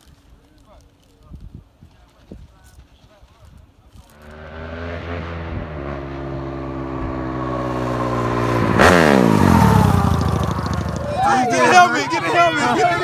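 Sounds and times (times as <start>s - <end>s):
atv engine at high revs: 4.1s - 13.0s.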